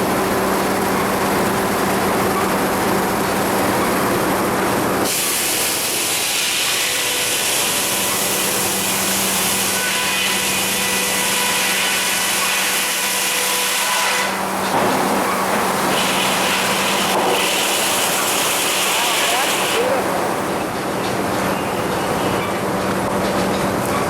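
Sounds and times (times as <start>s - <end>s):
steady machine hum: 0.0s - 13.6s
saw cutting through log: 5.0s - 20.2s.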